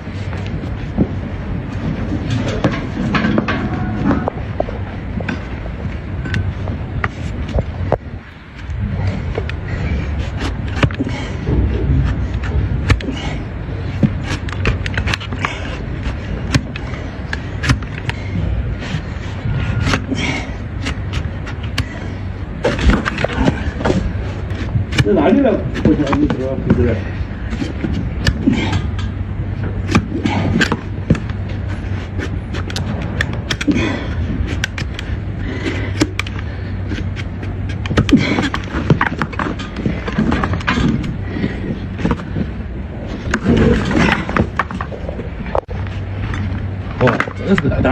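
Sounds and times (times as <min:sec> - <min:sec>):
steady low hum: 0:00.0 - 0:47.9
steady low rumble: 0:00.0 - 0:47.9
knife cutting and scraping hoof: 0:14.0 - 0:29.0, 0:29.7 - 0:42.5.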